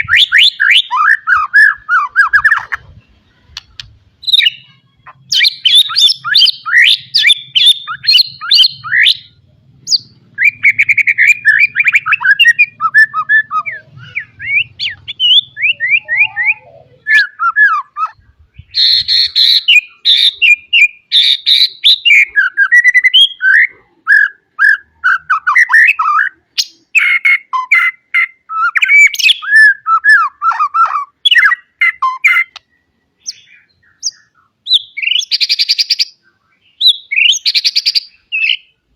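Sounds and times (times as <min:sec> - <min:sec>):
songbird singing varied song: 0:00.0 - 0:38.9.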